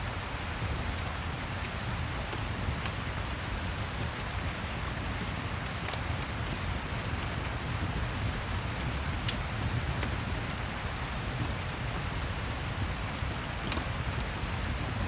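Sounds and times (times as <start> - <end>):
fireplace fire crackling: 0.0 - 4.2.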